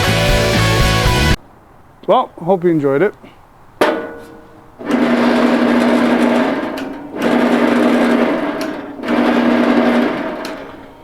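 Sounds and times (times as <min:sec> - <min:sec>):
band saw running: 0:04.8 - 0:11.0.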